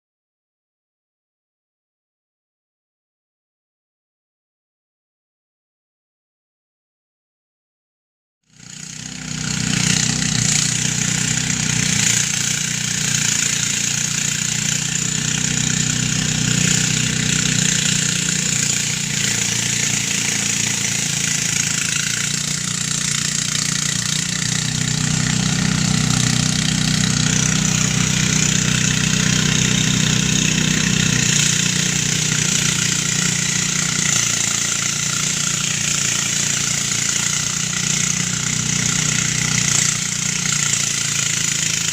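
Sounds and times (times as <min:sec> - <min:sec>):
rice thresher engine droning: 0:08.5 - 0:41.9.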